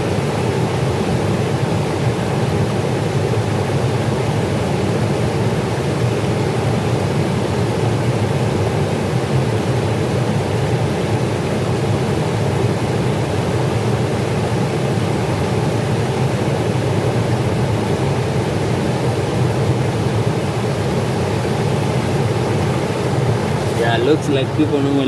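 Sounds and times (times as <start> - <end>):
river water rushing: 21.3 - 24.7.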